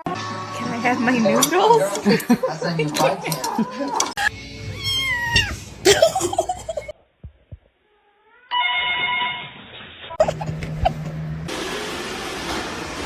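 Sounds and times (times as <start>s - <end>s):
electronic ringing tone: 8.5s - 9.5s.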